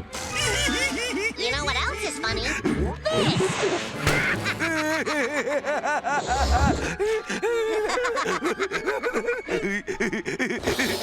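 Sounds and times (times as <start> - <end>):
cartoon character cackling: 4.1 - 5.2.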